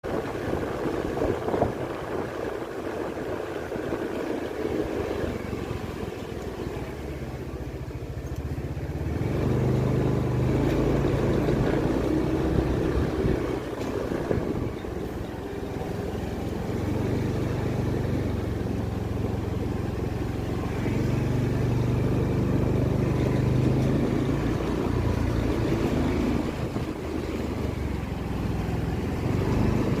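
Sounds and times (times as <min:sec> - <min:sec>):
engine humming: 0:00.0 - 0:30.0.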